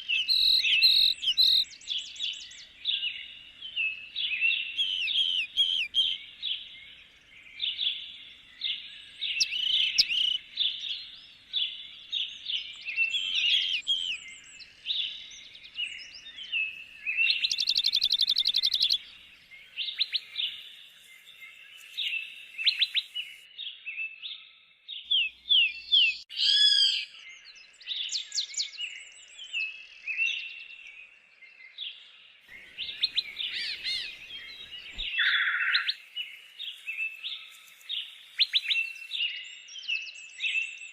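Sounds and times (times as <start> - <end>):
bird trill: 0.0 - 6.7, 7.6 - 23.4, 32.5 - 40.8
songbirds singing: 0.0 - 40.9.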